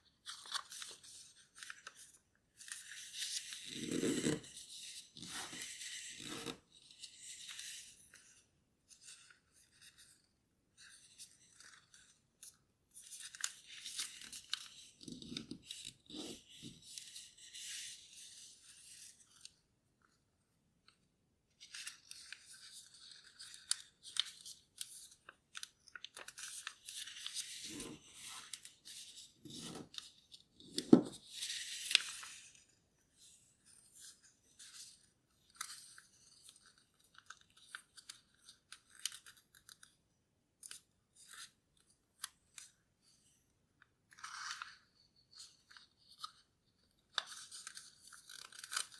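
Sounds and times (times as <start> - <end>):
paper rustling and crinkling: 0.2 - 7.8, 21.6 - 32.5, 44.1 - 48.9.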